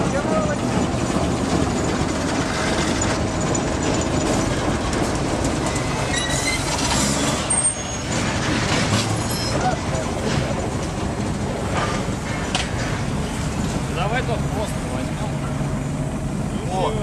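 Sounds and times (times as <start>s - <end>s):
diesel locomotive rumble: 0.0s - 17.0s
high-pitched squeal: 5.6s - 8.4s.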